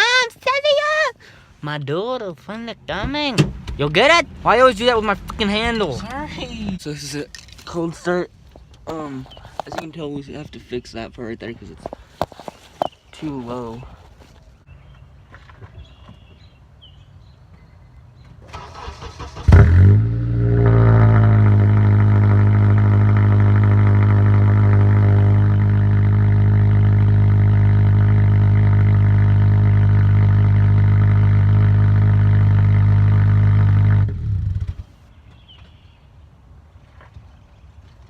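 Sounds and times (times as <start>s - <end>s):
loud car engine idling: 19.8s - 34.8s.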